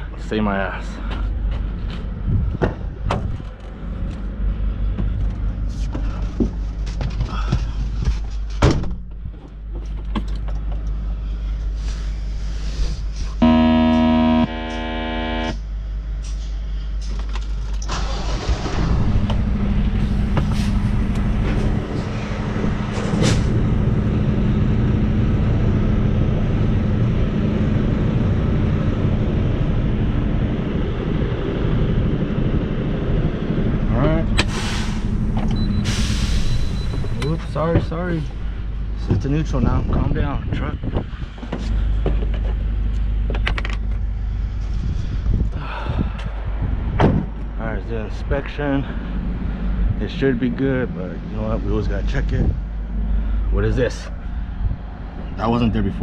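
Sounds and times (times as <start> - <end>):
steady electronic tone: 13.4 - 15.7
diesel truck engine running: 13.4 - 15.9, 17.9 - 39.8.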